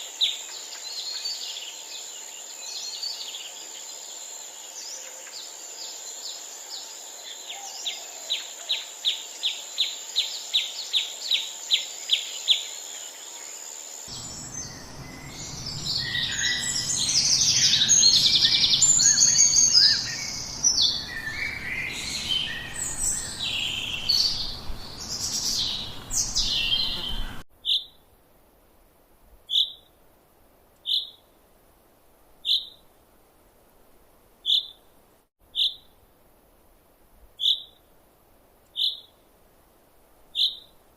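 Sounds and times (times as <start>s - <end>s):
chorus of bird chirps and trills: 0.0s - 28.0s, 29.5s - 29.9s, 30.8s - 31.3s, 32.4s - 32.8s, 34.4s - 34.8s, 35.5s - 35.9s, 37.4s - 37.8s, 38.7s - 39.2s, 40.3s - 40.8s
steady high hiss: 0.0s - 40.9s
low rumble: 14.1s - 19.1s
single bird chirping: 14.1s - 28.0s, 29.5s - 29.9s, 30.8s - 31.3s, 32.4s - 32.8s, 34.4s - 34.9s, 35.5s - 36.0s, 37.4s - 37.8s, 38.7s - 39.2s, 40.3s - 40.8s.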